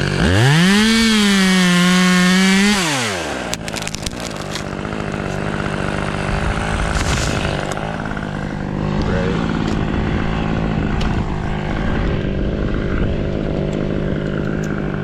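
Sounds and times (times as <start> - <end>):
chainsaw revving: 0.0 - 15.0
engine running steadily: 0.0 - 15.0
sharp cracks: 3.0 - 9.9.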